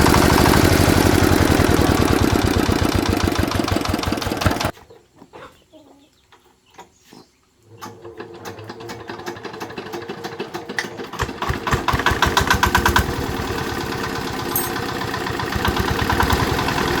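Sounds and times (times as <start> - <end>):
single-cylinder diesel engine knocking: 0.0 - 4.7, 11.2 - 17.0.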